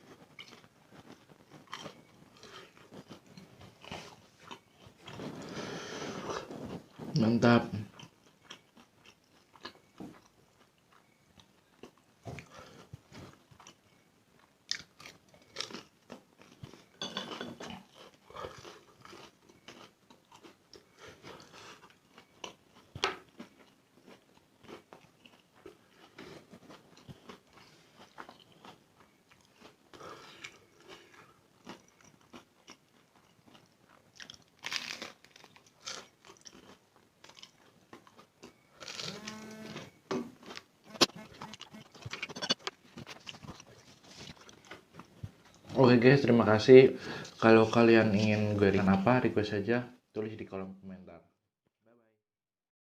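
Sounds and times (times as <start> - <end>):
person chewing noodles: 0.0 - 7.1, 7.9 - 45.8.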